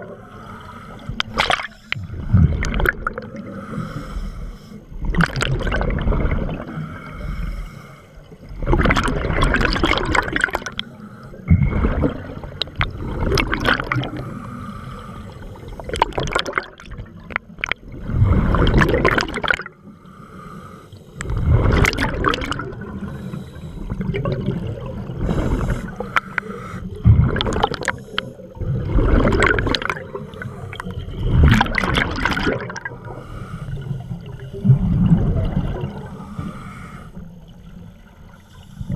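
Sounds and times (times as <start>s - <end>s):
diver breathing through regulator: 0.0s - 2.6s, 3.2s - 4.9s, 6.6s - 8.3s, 14.0s - 15.9s, 19.8s - 21.7s, 23.0s - 24.2s, 25.1s - 27.1s, 30.0s - 31.2s, 32.9s - 34.6s, 35.9s - 37.4s
gurgling exhaled bubbles: 1.0s - 4.2s, 4.9s - 7.2s, 8.3s - 14.4s, 15.5s - 19.8s, 21.2s - 36.6s.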